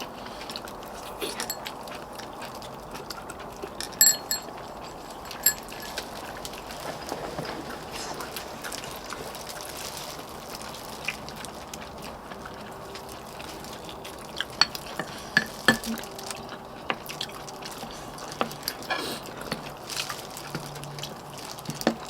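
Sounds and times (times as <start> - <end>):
spoon stirring broth: 0.9 - 1.7, 4.0 - 6.2
spoon clinking against bowl: 1.0 - 1.7, 4.0 - 6.1, 14.5 - 16.0.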